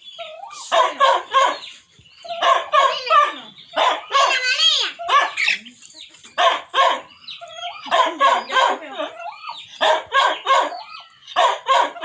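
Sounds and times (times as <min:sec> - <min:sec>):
dog barking: 0:00.6 - 0:01.7, 0:02.3 - 0:05.6, 0:06.4 - 0:09.2, 0:09.8 - 0:12.0.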